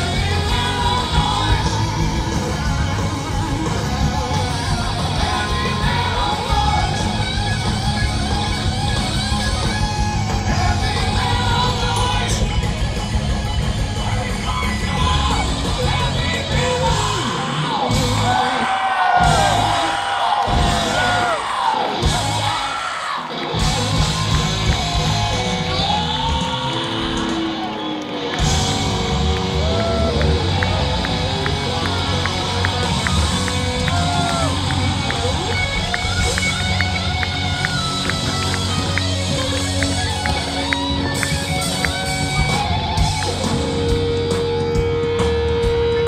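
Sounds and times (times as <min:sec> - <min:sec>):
singer yelling and singing: 0:00.0 - 0:08.8, 0:09.4 - 0:12.8, 0:13.8 - 0:23.4
crowd noise: 0:00.0 - 0:46.0
live rock band playing: 0:00.0 - 0:46.0.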